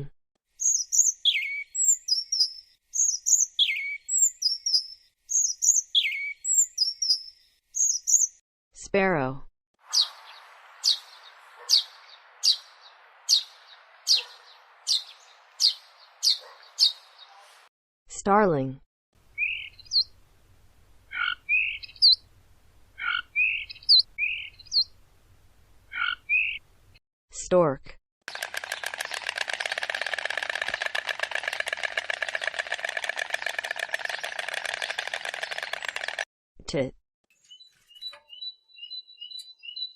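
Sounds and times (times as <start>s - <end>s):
sparrow chirping: 0.6s - 8.4s, 9.9s - 17.6s, 19.4s - 20.2s, 21.1s - 22.3s, 23.0s - 25.0s, 25.9s - 26.6s, 37.4s - 39.9s
faint outdoor background noise: 9.8s - 17.7s
stork clattering its bill: 28.3s - 36.3s.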